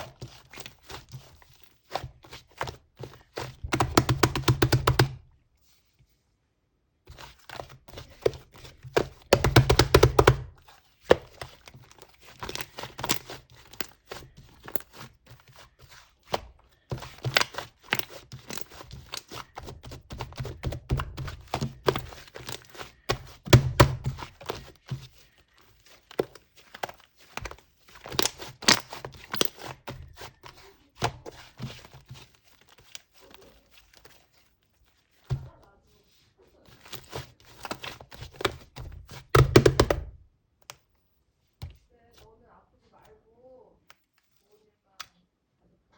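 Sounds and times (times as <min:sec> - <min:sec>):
slime squished by hand: 0:07.1 - 0:40.8.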